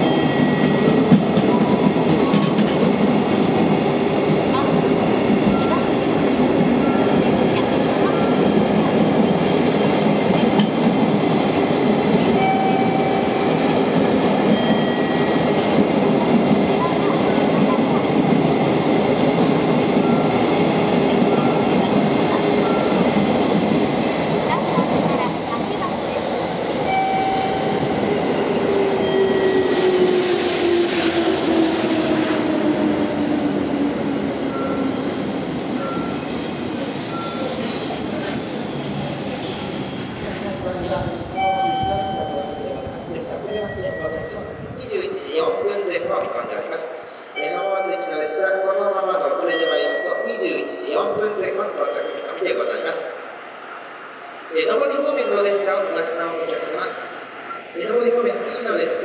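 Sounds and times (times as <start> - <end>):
train wheels on track: 0.0 - 59.0
thin high tone: 47.4 - 48.7.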